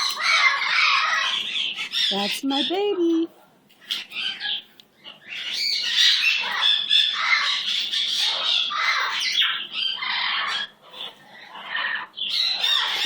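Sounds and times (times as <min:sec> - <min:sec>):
bird squawking harshly: 0:05.3 - 0:13.0.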